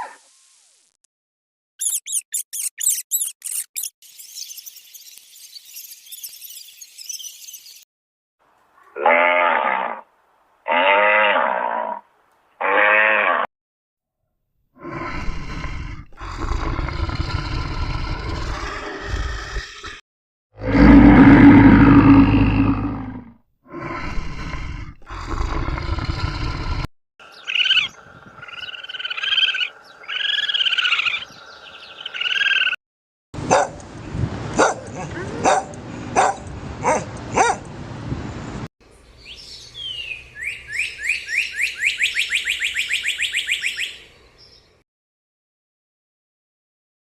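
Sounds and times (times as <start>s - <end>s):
rising and falling animal calls: 1.8s - 3.9s, 14.8s - 20.0s, 20.6s - 32.8s
twittering bird chirps: 1.8s - 7.8s, 27.2s - 32.8s, 39.2s - 44.6s
loud harsh animal call: 20.6s - 26.6s, 27.2s - 32.8s
sharp yaps or barks: 34.6s - 37.6s.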